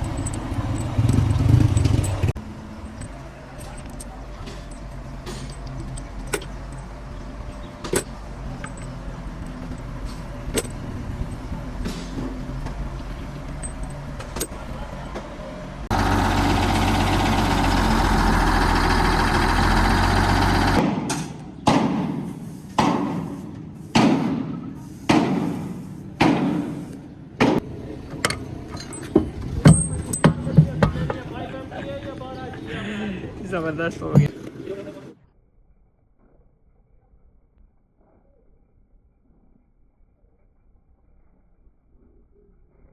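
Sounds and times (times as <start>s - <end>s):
low machine hum: 0.0s - 20.8s.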